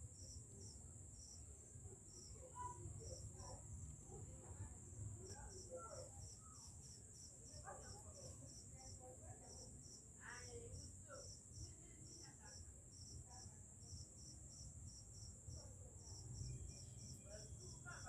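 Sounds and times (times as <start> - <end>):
insects chirping: 5.3 - 18.0.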